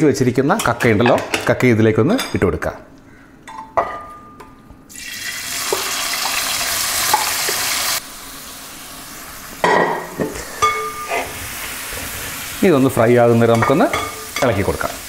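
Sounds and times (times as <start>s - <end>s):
clams sizzling in oil: 5.0s - 15.0s.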